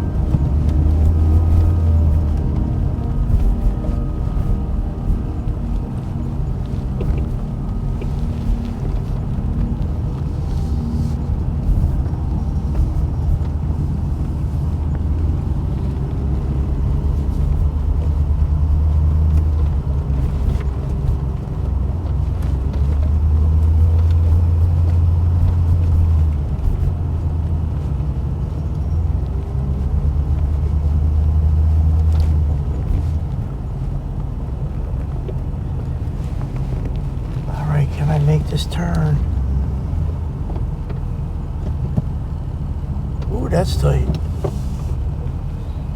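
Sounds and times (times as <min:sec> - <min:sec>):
truck engine and road noise: 0:00.0 - 0:45.9.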